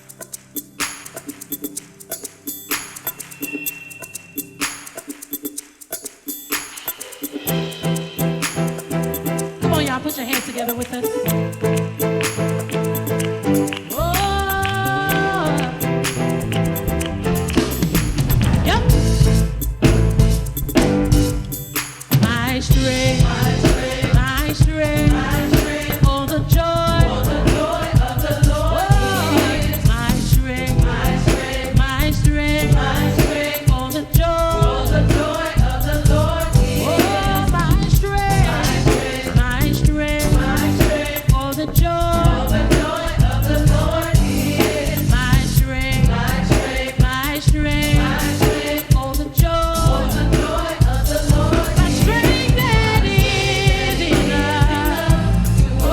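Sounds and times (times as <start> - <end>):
band with drums and bass: 0.0 - 55.9
singers and choir: 12.9 - 16.8, 22.1 - 55.9.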